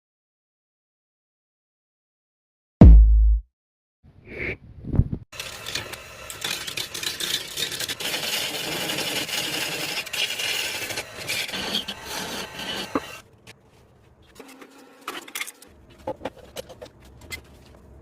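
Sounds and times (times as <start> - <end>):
lathe tool scraping wood: 6.4 - 13.2.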